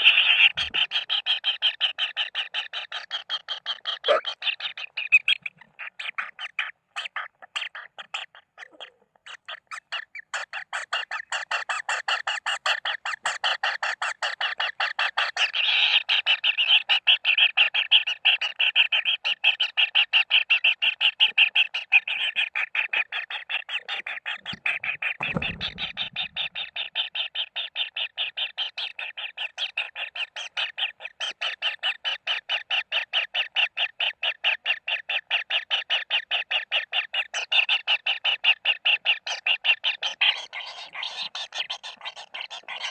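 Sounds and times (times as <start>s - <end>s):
chicks chirping harshly: 0.0s - 1.0s, 2.5s - 15.5s, 22.2s - 28.0s
low thump: 24.5s - 26.7s.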